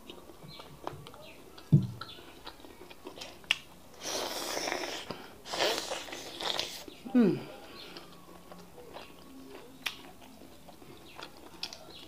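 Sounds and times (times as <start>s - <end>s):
chewing and wet mouth smacking: 0.0s - 7.0s, 7.8s - 12.0s
hissing mouth sounds: 4.0s - 6.9s.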